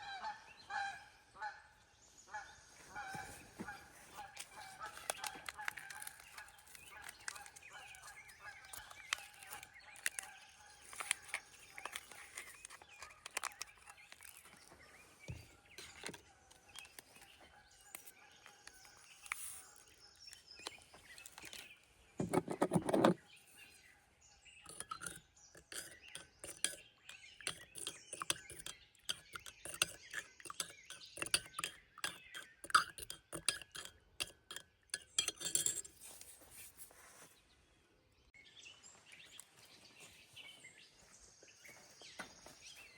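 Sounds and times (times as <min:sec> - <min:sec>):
utensils and dishes clinking: 0:24.7 - 0:36.4.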